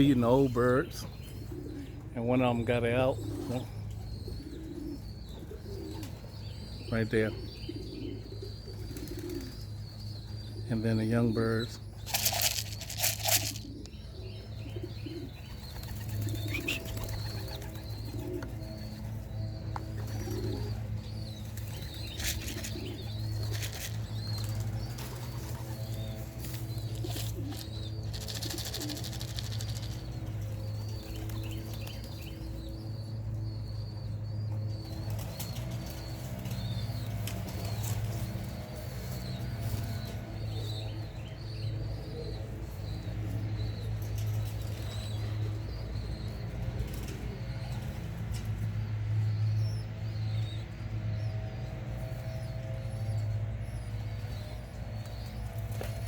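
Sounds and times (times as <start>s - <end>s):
pigeons cooing: 0.0s - 56.0s
small birds chirping: 0.0s - 56.0s
pigeon wings flapping: 26.4s - 30.4s.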